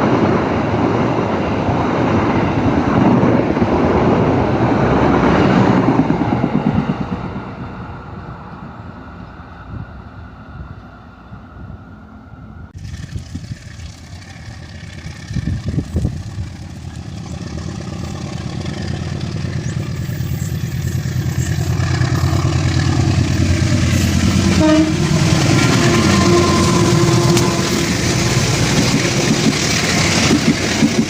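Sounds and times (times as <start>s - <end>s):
diesel locomotive engine rumble: 0.0s - 31.0s
rail rumble: 0.0s - 31.0s
locomotive horn: 21.8s - 28.8s.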